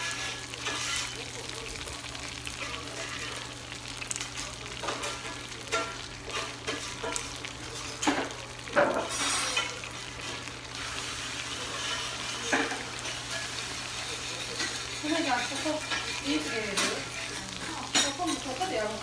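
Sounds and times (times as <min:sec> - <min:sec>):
metal utensil scraping and clinking: 0:00.0 - 0:01.2, 0:09.0 - 0:10.5, 0:11.6 - 0:19.0
food sizzling on a griddle: 0:00.0 - 0:19.0.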